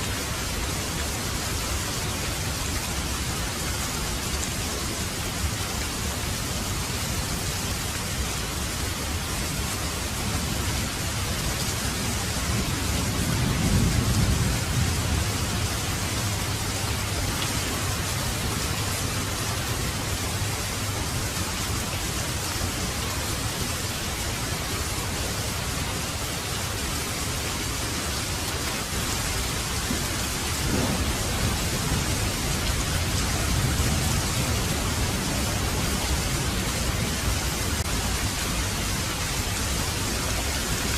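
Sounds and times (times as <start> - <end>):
heavy rain falling: 0.0 - 40.9
thunder rolling: 12.5 - 17.2, 29.7 - 38.2.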